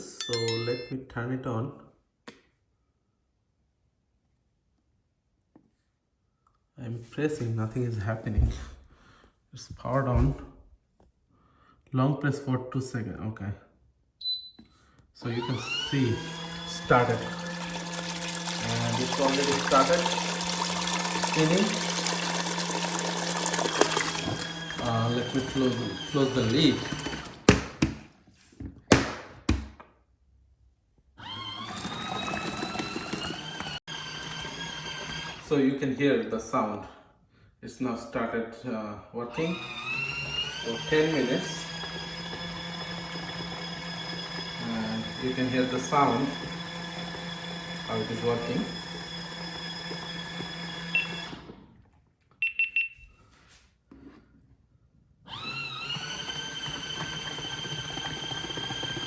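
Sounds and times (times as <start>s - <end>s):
short high beeps: 14.2s - 14.6s, 52.4s - 53.2s
washing machine motor humming: 15.2s - 27.5s, 31.2s - 35.4s, 39.4s - 51.5s, 55.3s - 59.0s.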